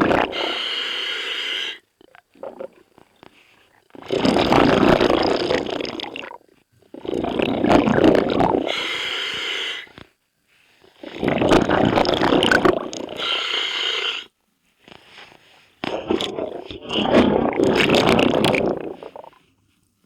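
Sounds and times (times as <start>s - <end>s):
bubbling exhaled air underwater: 0.0s - 0.8s, 2.0s - 9.1s, 11.0s - 13.5s, 15.8s - 19.4s
regulator inhalation hiss: 0.3s - 1.8s, 8.7s - 10.0s, 13.1s - 14.3s.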